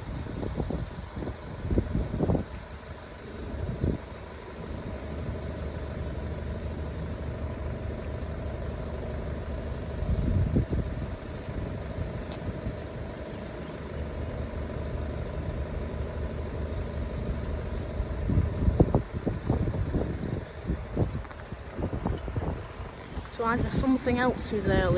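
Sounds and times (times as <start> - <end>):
wind on microphone: 0.0 - 5.4, 9.9 - 12.9, 16.8 - 24.9
diesel locomotive engine drone: 0.0 - 24.9.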